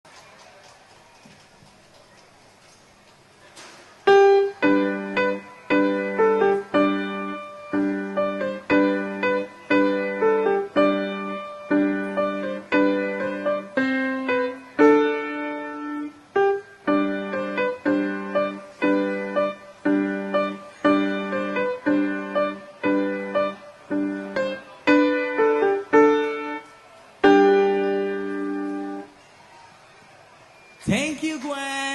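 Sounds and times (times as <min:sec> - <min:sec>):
piano piece: 0:04.1 - 0:29.2.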